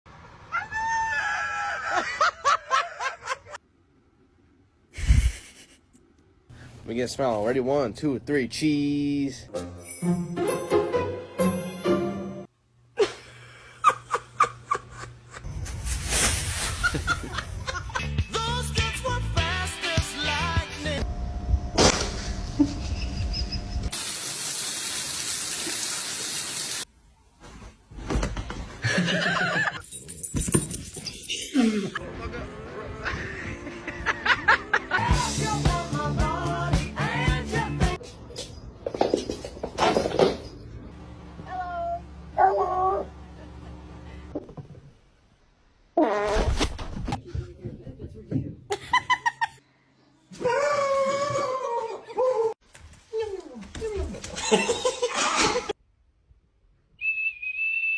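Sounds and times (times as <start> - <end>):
person laughing: 5.0 - 6.0, 16.7 - 18.2, 31.5 - 35.2, 48.7 - 49.6, 54.2 - 55.7
person shrieking: 50.4 - 52.6.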